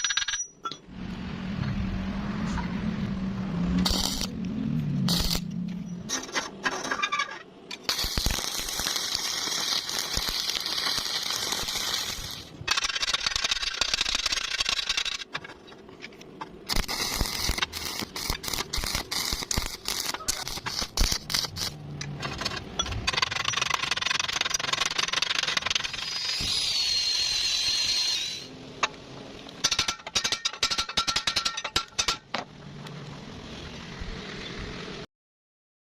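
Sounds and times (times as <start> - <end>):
welding arc crackling: 3.8 - 5.5, 7.8 - 15.3, 16.6 - 22.5, 23.1 - 28.5.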